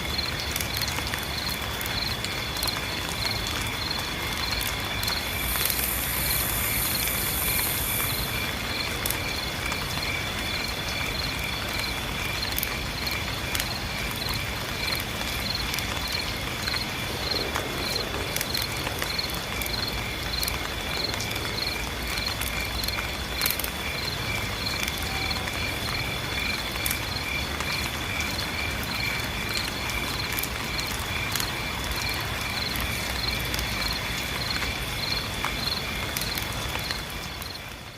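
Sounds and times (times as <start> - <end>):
crickets trilling: 0.0 - 37.9
pulsing insect chirp: 4.8 - 9.4.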